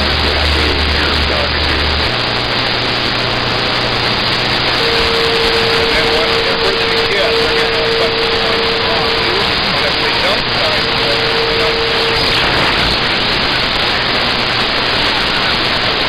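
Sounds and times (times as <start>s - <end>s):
faint garbled voices: 0.0s - 16.0s
radio static hiss: 0.0s - 16.0s
steady whistle tone: 4.6s - 13.9s.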